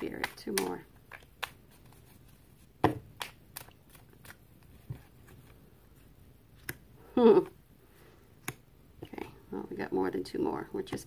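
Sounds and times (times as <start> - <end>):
cards tapping and slapping on table: 0.0 - 1.6, 2.8 - 5.0
cards being shuffled: 0.0 - 5.7.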